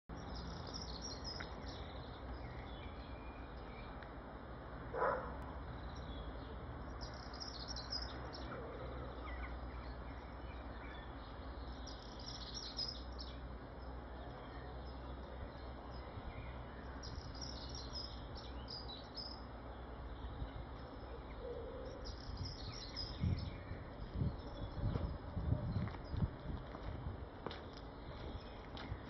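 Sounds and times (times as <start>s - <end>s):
small songbirds chirping: 0.0s - 29.0s
steady low rumble: 19.6s - 29.0s.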